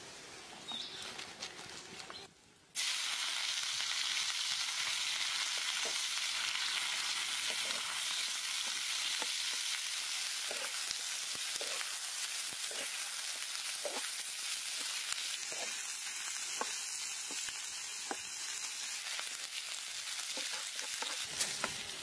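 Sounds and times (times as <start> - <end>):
food sizzling in a wok: 2.8 - 22.0
wooden spatula scraping wok: 10.4 - 10.8.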